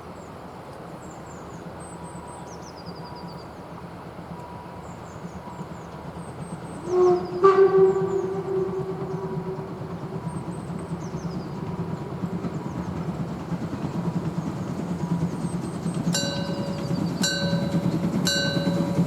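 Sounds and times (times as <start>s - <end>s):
steam locomotive rumbling past: 3.6s - 19.0s
steam locomotive whistle: 6.7s - 10.8s, 16.1s - 19.0s.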